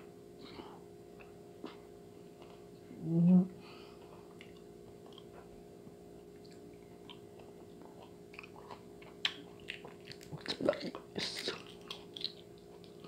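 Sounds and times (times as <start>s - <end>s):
low steady hum: 0.0s - 13.0s
wet chewing and biting: 6.4s - 13.0s.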